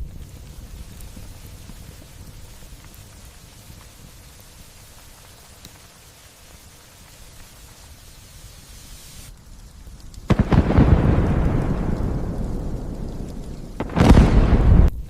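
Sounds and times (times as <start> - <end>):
light rain hiss: 0.0 - 15.0
thunderclap rumbling: 10.2 - 15.0.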